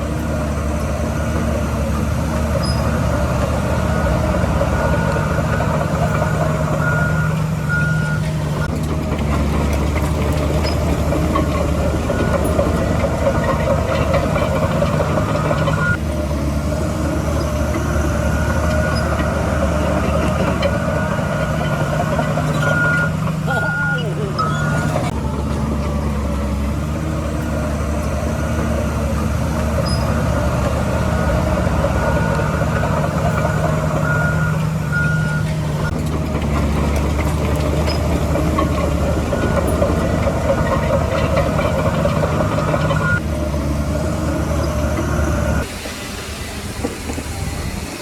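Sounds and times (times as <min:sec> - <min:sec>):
diesel machinery engine hum: 0:00.0 - 0:48.0
reversing alarm beeps: 0:02.5 - 0:08.8, 0:10.6 - 0:16.0, 0:18.1 - 0:25.2, 0:32.0 - 0:36.0, 0:37.8 - 0:43.2.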